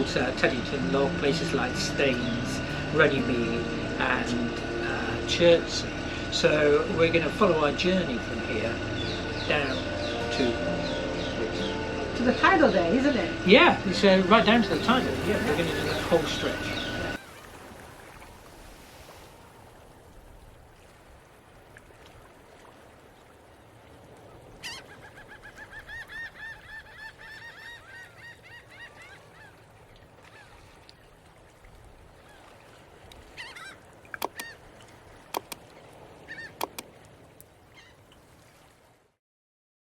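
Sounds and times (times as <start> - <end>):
geese honking: 0.0 - 17.2, 33.4 - 34.6
low steady rumble: 0.0 - 17.2
sharp clicks: 34.2 - 34.5, 35.4 - 35.6, 36.6 - 36.9.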